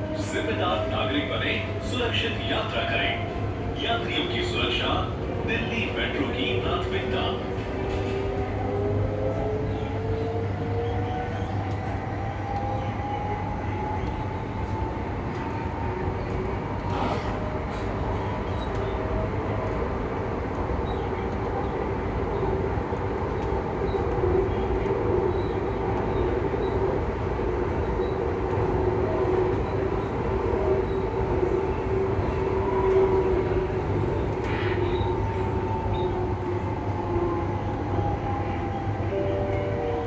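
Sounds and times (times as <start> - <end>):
rumble of wheels on rail: 0.0 - 40.0.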